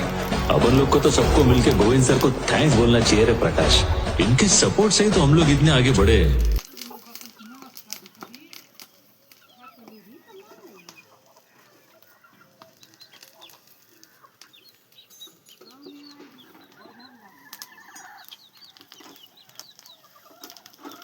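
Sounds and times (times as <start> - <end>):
chickens clucking: 6.7 - 21.0
chickens peeping: 8.2 - 21.0.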